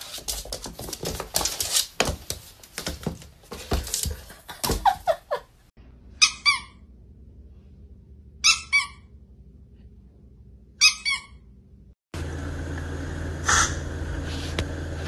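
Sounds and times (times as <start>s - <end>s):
squeaky toy squeaking: 6.2s - 6.8s, 8.4s - 9.0s, 10.8s - 11.4s.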